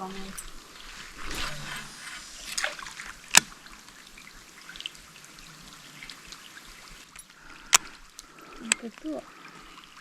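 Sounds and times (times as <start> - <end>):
rain hiss: 0.0 - 10.0
running water: 0.0 - 10.0
drops ticking: 7.1 - 9.2.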